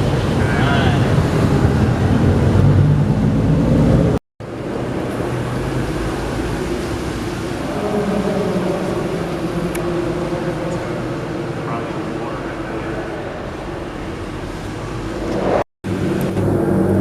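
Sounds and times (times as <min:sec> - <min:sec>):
car engine running: 0:07.6 - 0:17.0.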